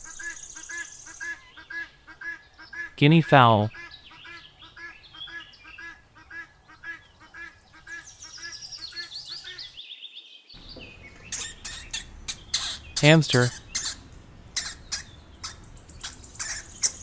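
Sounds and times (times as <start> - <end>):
guinea fowl calling: 0.0 - 3.0, 3.7 - 9.8, 10.6 - 17.0
descending bird chirping: 8.0 - 17.0.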